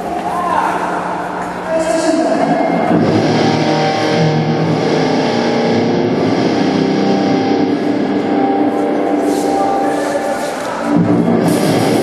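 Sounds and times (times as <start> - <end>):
distorted electric guitar: 2.4 - 12.0
rock band playing through pa: 2.9 - 9.9, 10.9 - 12.0.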